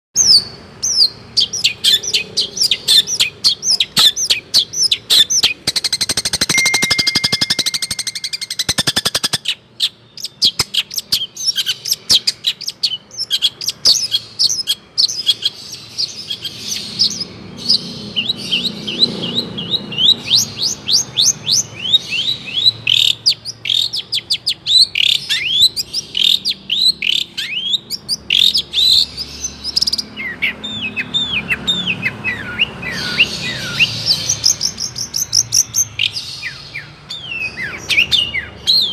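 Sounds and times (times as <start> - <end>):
shrike singing varied song: 0.2 - 38.9
fast rattling trill: 5.6 - 9.4.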